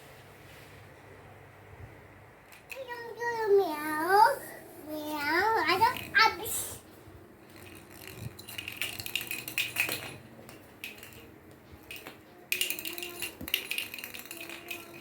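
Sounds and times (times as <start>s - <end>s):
toy ball clinking and rattling: 2.4s - 3.2s, 5.3s - 15.0s.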